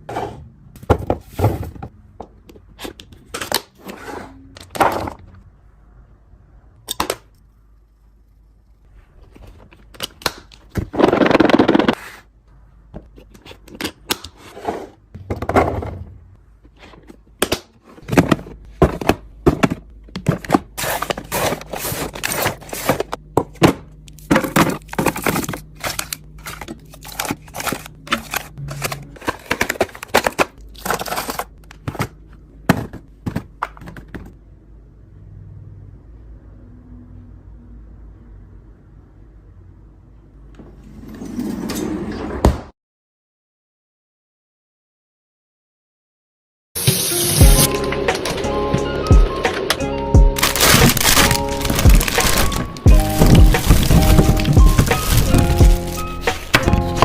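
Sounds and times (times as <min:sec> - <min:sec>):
plastic containers clacking: 0:16.9 - 0:34.4, 0:50.4 - 0:57.0.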